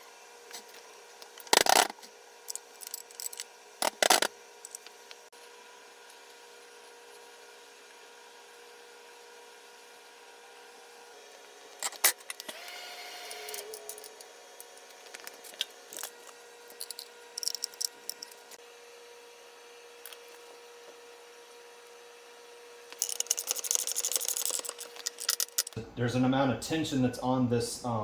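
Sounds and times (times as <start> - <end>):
hand tools handling metal parts: 0.5 - 5.1, 11.8 - 12.6, 13.3 - 18.6, 22.9 - 25.8
scraping rattle: 15.2 - 18.6, 22.9 - 25.8.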